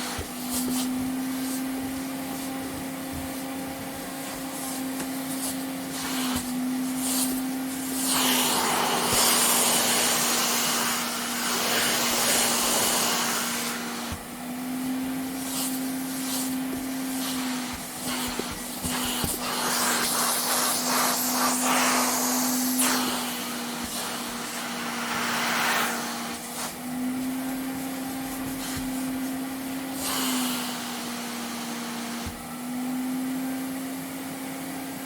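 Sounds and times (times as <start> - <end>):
vacuum cleaner motor hum: 0.0 - 35.0
rushing hiss of air: 17.2 - 26.8, 29.9 - 30.8.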